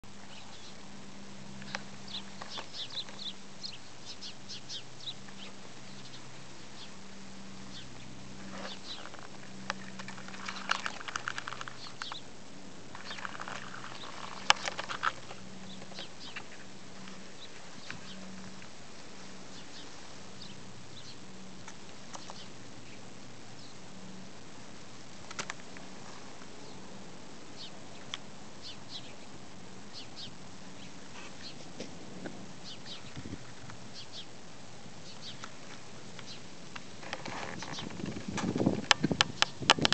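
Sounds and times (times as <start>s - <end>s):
faint low hum: 0.0s - 39.9s
baby bird peeping: 1.6s - 7.0s, 13.0s - 16.6s.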